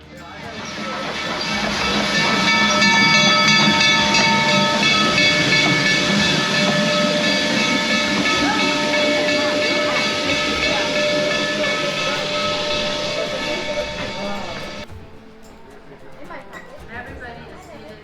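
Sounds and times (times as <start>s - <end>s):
locomotive steam hissing: 0.0s - 15.0s
steam whistle blast: 0.6s - 14.8s.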